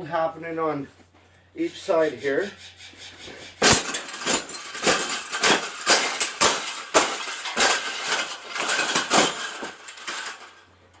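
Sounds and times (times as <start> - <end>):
wire cage clanking and rattling: 3.1 - 11.0.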